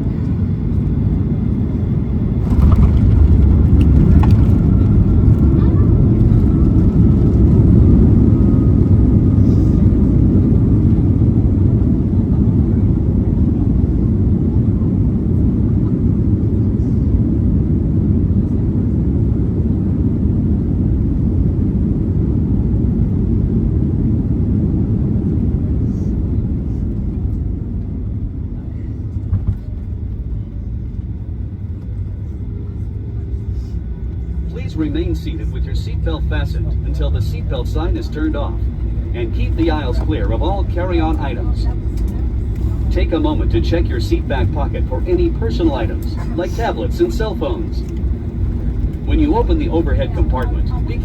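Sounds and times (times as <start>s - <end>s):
jet engines rumbling: 0.0s - 51.0s
wheels rolling on runway: 2.4s - 7.8s.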